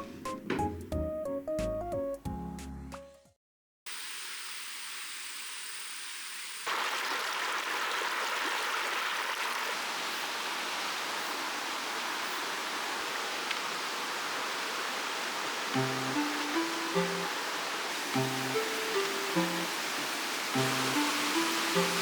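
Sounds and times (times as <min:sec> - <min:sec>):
stream water rushing: 0:06.7 - 0:22.0.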